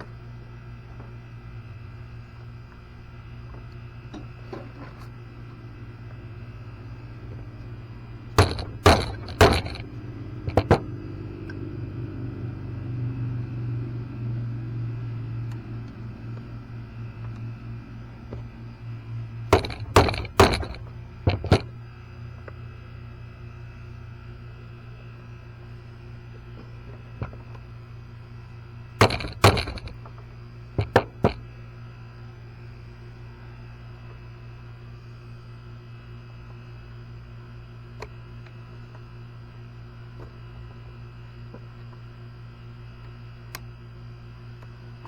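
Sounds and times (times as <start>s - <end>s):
steady low hum: 5.4s - 33.3s.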